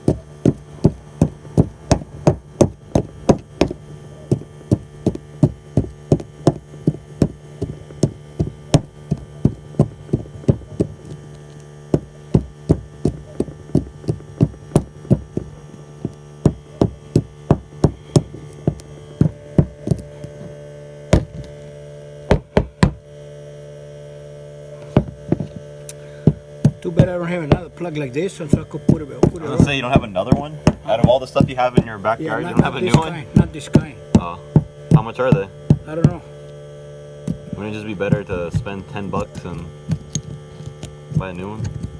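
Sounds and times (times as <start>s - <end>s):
sharp knocks: 0.0s - 20.5s, 21.1s - 21.5s, 22.3s - 23.1s, 24.9s - 27.8s, 28.4s - 36.2s
steady low hum: 0.0s - 41.9s.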